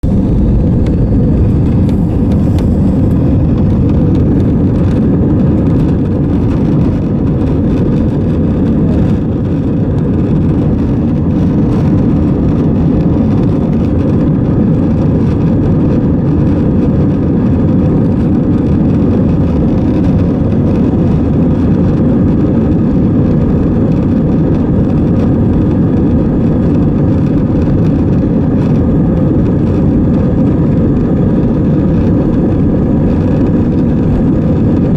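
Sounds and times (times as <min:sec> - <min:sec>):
airplane cabin rumble: 0:00.0 - 0:34.9.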